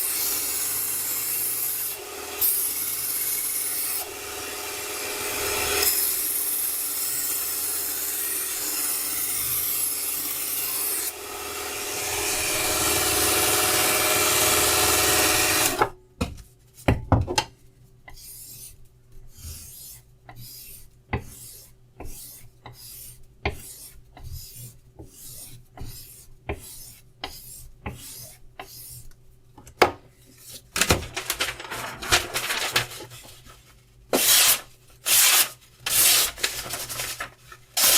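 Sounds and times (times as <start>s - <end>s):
belt grinder grinding knife: 5.2s - 15.8s, 34.2s - 36.6s.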